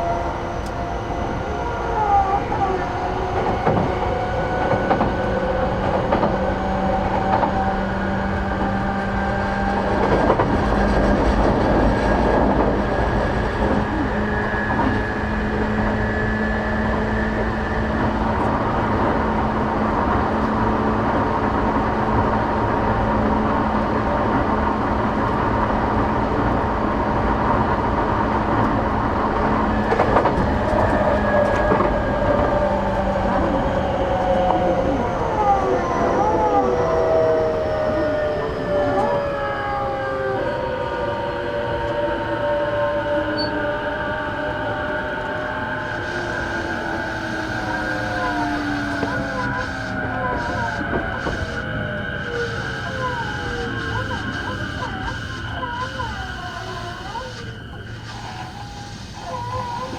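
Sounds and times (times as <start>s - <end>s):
train wheels rumbling on rail: 0.0s - 59.9s
high whining tones: 29.7s - 59.9s.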